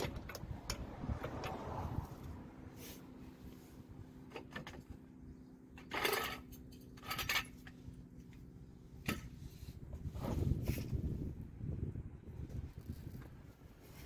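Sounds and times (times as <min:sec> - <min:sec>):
metal tools clinking and scraping: 0:05.6 - 0:08.4.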